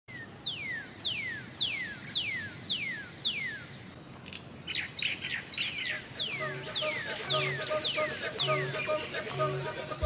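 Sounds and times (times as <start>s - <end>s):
high whistled chirps: 5.7s - 10.0s.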